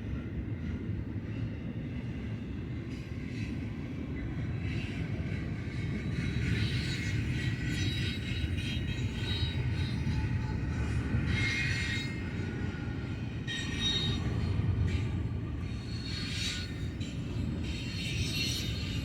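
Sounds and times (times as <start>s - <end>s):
steel wheels squealing: 4.5s - 19.0s.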